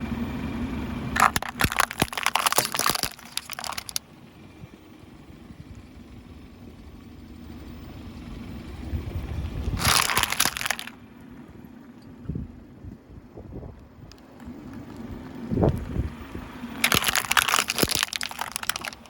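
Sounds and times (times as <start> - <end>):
low car engine hum: 0.0 - 19.0
tyre crushing small cups: 1.2 - 4.0, 9.8 - 11.0, 16.8 - 19.0.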